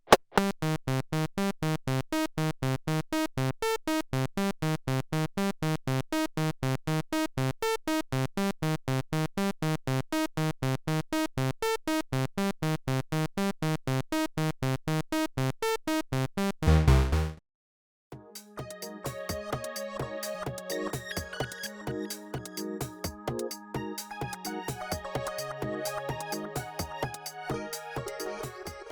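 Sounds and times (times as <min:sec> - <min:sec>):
synthesizer bass line: 0:16.6 - 0:17.4, 0:18.2 - 0:28.9.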